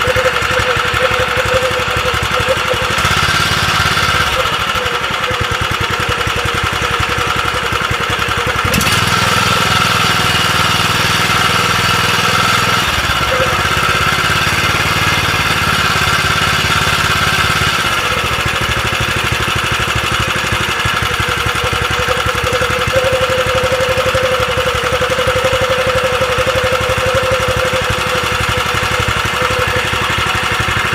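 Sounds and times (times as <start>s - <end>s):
abnormal engine noise: 0.0s - 30.9s
small engine running: 0.0s - 30.9s.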